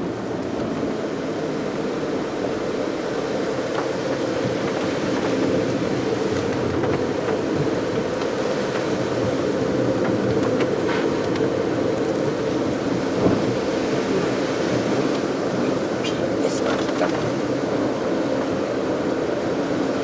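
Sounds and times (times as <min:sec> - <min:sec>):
tyre roar on wet road: 0:00.0 - 0:20.0.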